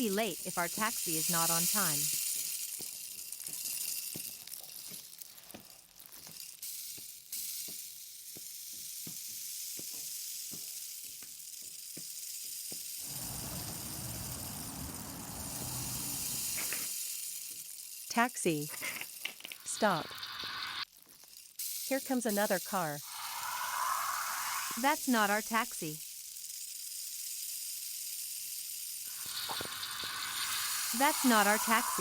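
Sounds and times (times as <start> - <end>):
car approaching: 13.0 - 16.4
rain drips and taps: 13.0 - 16.8
steady rainfall hiss: 13.0 - 16.9, 29.1 - 32.0.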